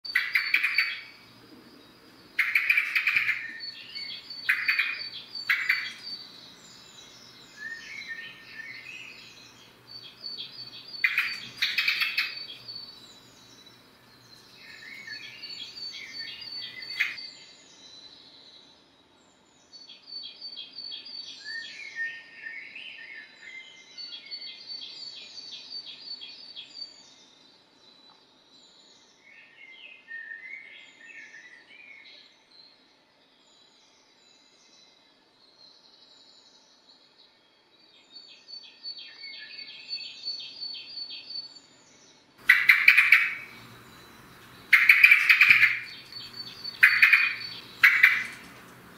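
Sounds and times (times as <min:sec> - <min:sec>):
blackbird singing: 0:00.0 - 0:18.4, 0:42.4 - 0:48.9
loud sharp bird calls: 0:00.1 - 0:01.4, 0:02.4 - 0:13.4, 0:14.6 - 0:17.2, 0:42.4 - 0:48.9.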